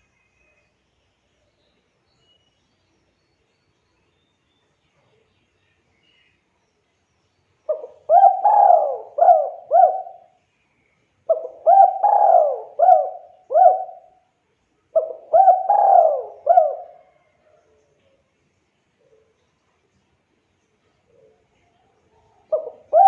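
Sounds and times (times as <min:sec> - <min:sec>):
dove cooing: 0:07.7 - 0:10.3, 0:11.3 - 0:14.2, 0:14.9 - 0:17.6, 0:22.4 - 0:23.0.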